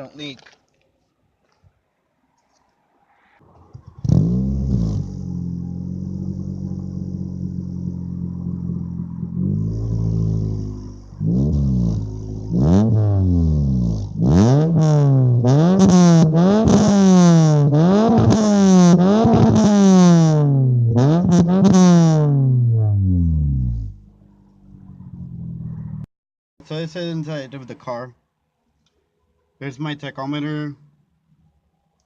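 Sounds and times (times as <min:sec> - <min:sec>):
car engine revving: 0:03.4 - 0:26.1
car engine starting and idling: 0:03.4 - 0:26.1.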